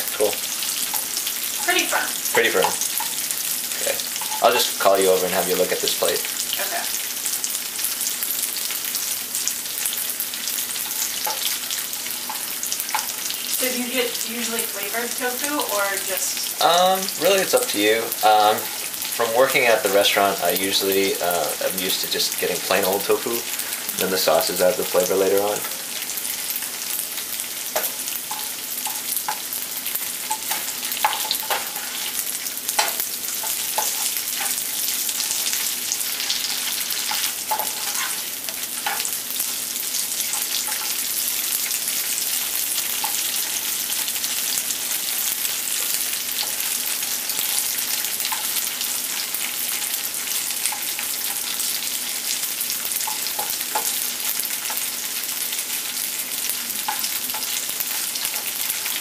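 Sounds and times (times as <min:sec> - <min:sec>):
tofu sizzling in hot oil: 0:00.0 - 0:59.0
spatula scraping and tapping pan: 0:10.8 - 0:13.3, 0:27.7 - 0:29.5, 0:30.2 - 0:39.2, 0:40.3 - 0:41.0, 0:53.0 - 0:54.0.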